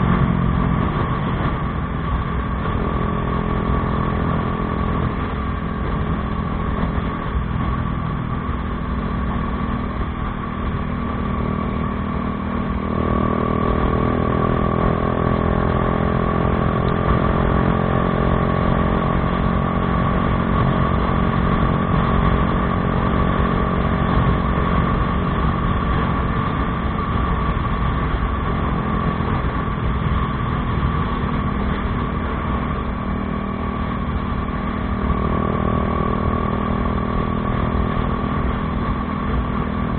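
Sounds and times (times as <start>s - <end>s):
motorcycle engine exhaust note: 0.0s - 39.9s.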